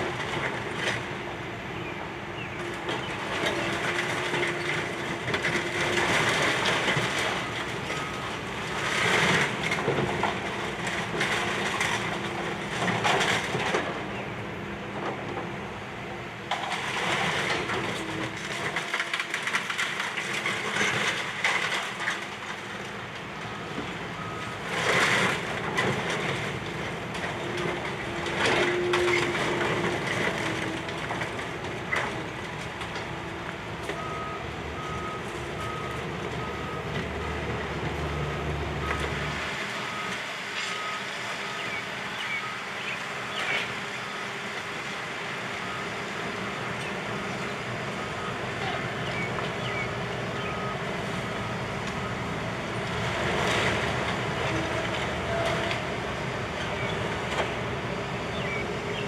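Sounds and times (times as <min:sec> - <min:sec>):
demolition machinery: 0:00.0 - 0:59.0
reversing alarm beeps: 0:39.8 - 0:42.7, 0:48.0 - 0:52.3.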